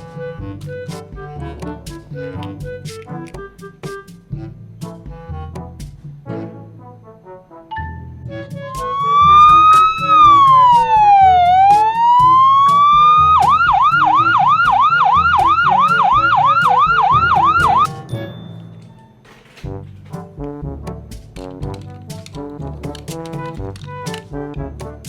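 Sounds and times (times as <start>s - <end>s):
background music: 0.0s - 25.0s
electronic siren wailing and yelping: 8.3s - 17.9s.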